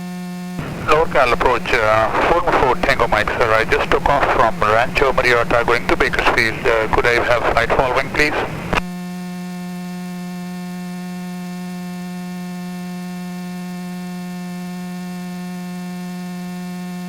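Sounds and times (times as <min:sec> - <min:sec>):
steady headset hum: 0:00.6 - 0:08.9.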